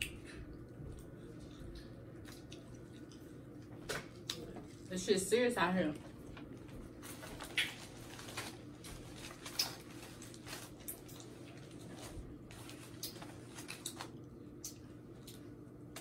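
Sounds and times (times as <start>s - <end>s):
chewing and lip smacks: 0.0s - 4.9s, 7.4s - 7.9s, 8.8s - 11.9s, 12.5s - 16.0s
faint steady hum: 0.0s - 16.0s.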